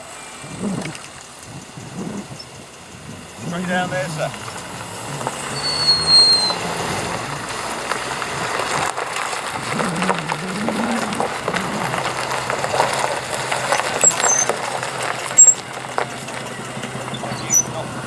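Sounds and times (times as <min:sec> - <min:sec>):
car engine passing by: 0:00.0 - 0:18.0.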